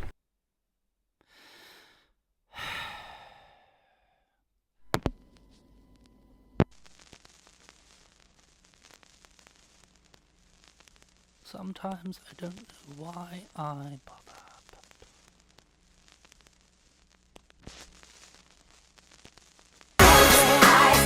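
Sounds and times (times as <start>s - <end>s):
person sighing: 1.3s - 4.2s
faint hiss: 6.7s - 21.0s.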